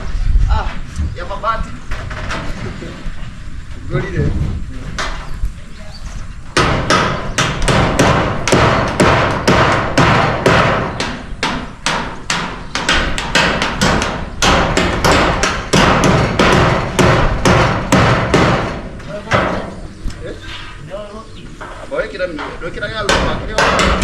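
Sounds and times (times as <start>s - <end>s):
hammer on corrugated iron roofing: 4.9s - 5.3s, 6.4s - 19.9s, 21.6s - 24.0s.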